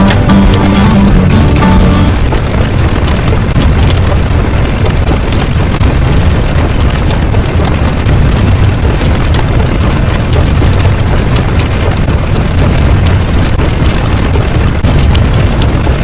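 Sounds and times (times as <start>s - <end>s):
explosion-like rumble with hiss: 2.2s - 16.0s.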